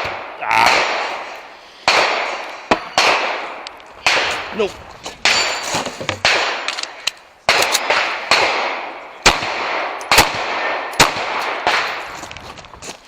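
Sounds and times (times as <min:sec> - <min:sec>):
pistol shots echoing: 0:00.0 - 0:04.6, 0:06.2 - 0:12.0.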